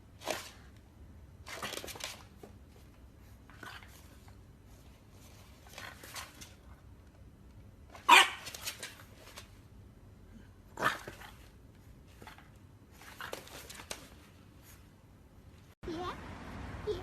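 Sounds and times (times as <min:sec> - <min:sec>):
dog barking: 0:08.1 - 0:08.4.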